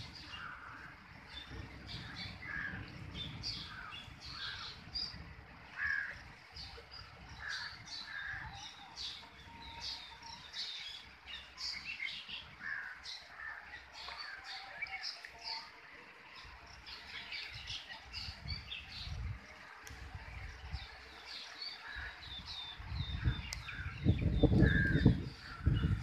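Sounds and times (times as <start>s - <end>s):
low uneven rumble: 0.0s - 14.3s
birds chirping: 0.0s - 26.0s
crows cawing: 5.8s - 6.2s, 12.6s - 13.6s.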